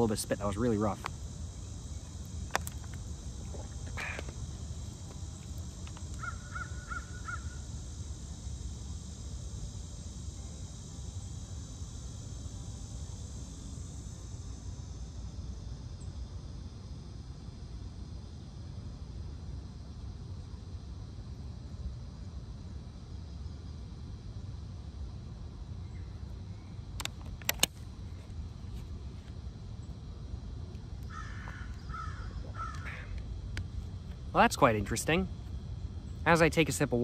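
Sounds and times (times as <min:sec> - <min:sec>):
low outdoor rumble: 0:00.0 - 0:37.0
bird calling: 0:06.2 - 0:07.6, 0:31.1 - 0:33.2
sharp click: 0:27.0 - 0:27.8.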